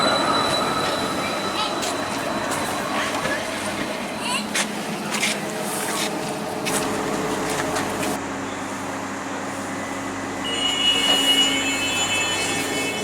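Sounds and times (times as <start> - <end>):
high-pitched squeal: 0.0 - 4.9
tram humming: 0.0 - 13.0.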